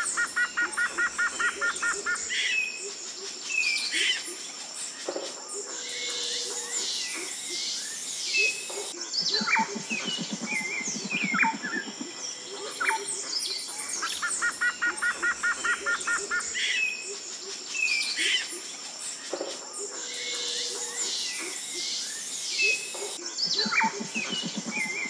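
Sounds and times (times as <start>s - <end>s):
wild birds chirping: 0.0s - 25.0s.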